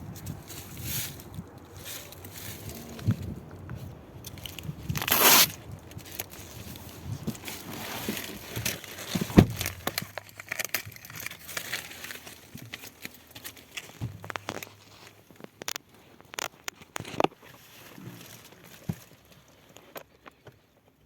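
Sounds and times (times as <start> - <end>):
plastic wrapping crinkling: 4.2 - 20.4
plastic wrapping tearing: 4.4 - 6.4, 7.4 - 17.3.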